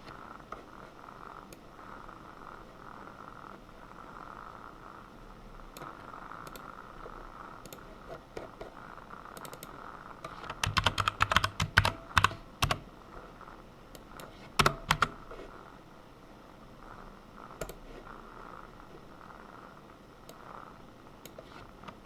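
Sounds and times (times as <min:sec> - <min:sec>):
faint steady hum: 0:00.0 - 0:22.0
computer keyboard typing: 0:05.7 - 0:06.7, 0:07.6 - 0:08.6, 0:09.4 - 0:12.9, 0:13.9 - 0:15.3, 0:17.6 - 0:17.8.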